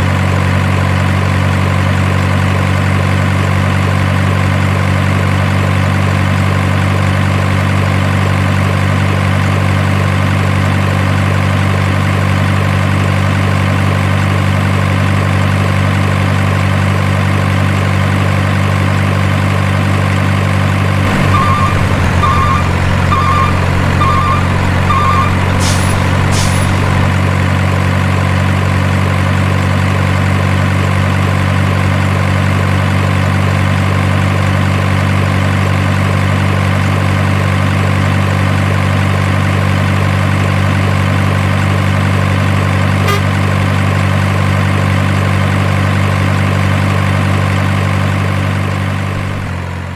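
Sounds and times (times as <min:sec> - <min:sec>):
truck engine idling: 0:00.0 - 0:49.9
short beeps: 0:21.1 - 0:27.1, 0:43.1 - 0:43.3
sharp air hisses: 0:25.6 - 0:27.0.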